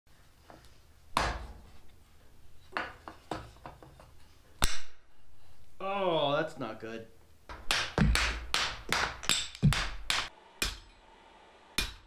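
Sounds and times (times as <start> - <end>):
hard objects knocking: 7.5 - 10.3.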